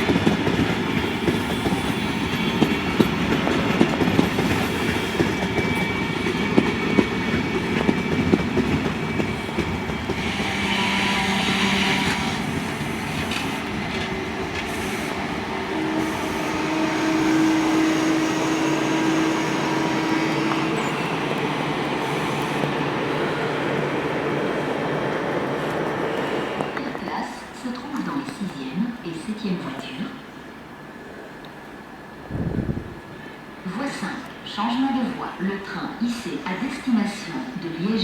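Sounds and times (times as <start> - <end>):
train wheels clicking over rail joints: 0.0 - 16.1
train rolling rumble: 0.0 - 37.8.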